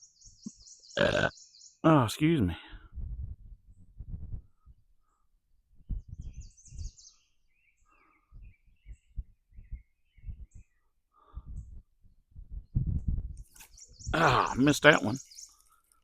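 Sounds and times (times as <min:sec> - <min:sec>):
songbirds chirping: 0:00.0 - 0:16.0
low muffled thumps: 0:02.8 - 0:04.8, 0:05.8 - 0:06.9, 0:08.4 - 0:10.7, 0:11.4 - 0:13.4.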